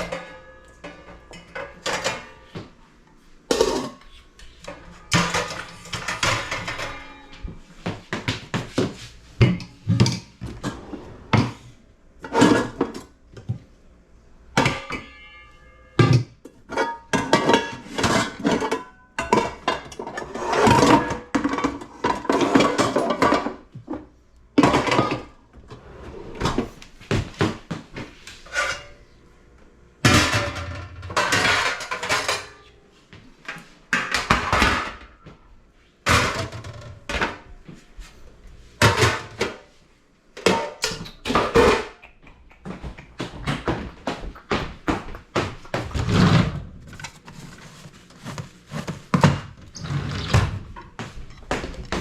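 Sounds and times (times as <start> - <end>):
pots and pans clattering: 0.0 - 2.8, 3.4 - 13.6, 14.5 - 15.4, 16.0 - 25.4, 30.0 - 32.6, 33.5 - 35.2, 36.1 - 37.5, 38.8 - 39.7, 40.4 - 52.0.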